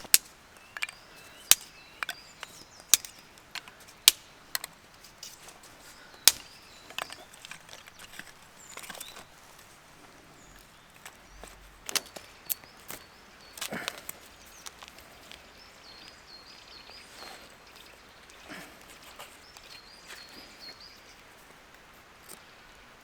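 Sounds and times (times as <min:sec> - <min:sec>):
wood chopping: 0:00.0 - 0:04.7, 0:06.3 - 0:07.2.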